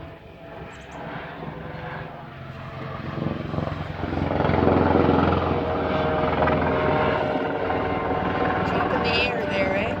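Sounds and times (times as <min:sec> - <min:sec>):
helicopter rotor chop overhead: 0:00.0 - 0:10.0.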